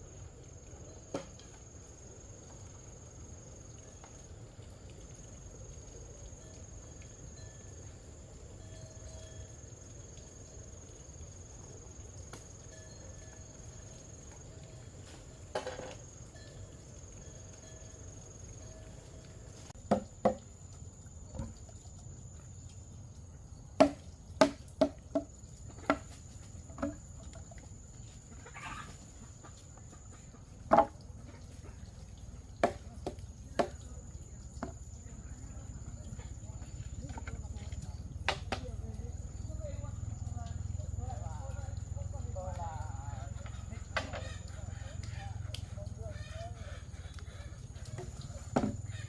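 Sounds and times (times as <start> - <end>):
sharp knocks and clicks: 19.8 - 20.5.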